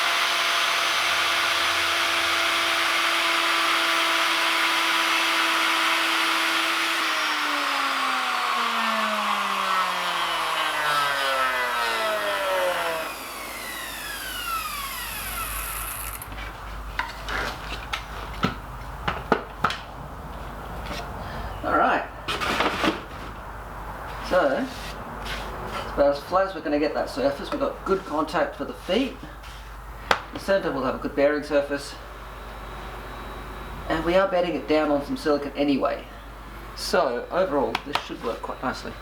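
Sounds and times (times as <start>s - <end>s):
wood router running: 0.0s - 16.4s.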